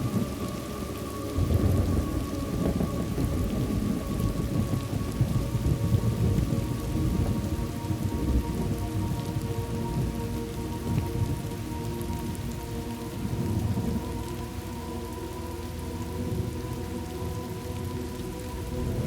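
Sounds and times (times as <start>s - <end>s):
steady rain: 0.0s - 19.0s
rolling thunder: 1.3s - 10.2s.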